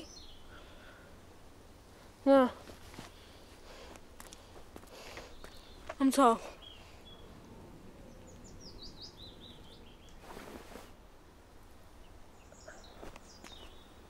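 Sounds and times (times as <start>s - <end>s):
songbird chirping: 0.0s - 1.1s, 4.3s - 14.0s
low background rumble: 0.0s - 14.0s
soft rush of noise: 0.0s - 14.0s.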